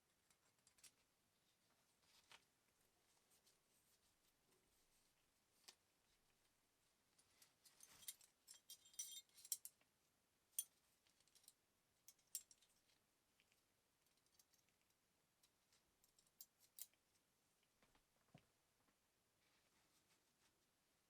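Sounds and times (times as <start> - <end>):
metal parts clinking: 7.9 - 9.7.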